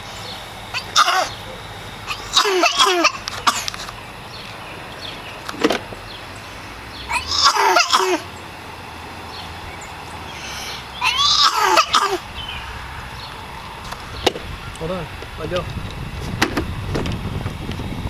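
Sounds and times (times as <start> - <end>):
small child babbling and squealing: 7.1 - 8.2, 11.0 - 12.2.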